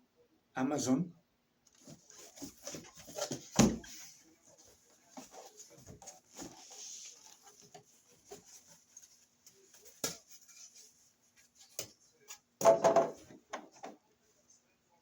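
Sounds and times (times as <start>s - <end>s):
scrape: 1.9s - 11.6s.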